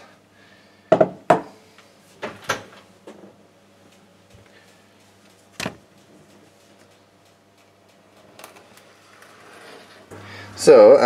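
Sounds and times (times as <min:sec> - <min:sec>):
knocks and clunks on countertop: 0:00.9 - 0:01.5.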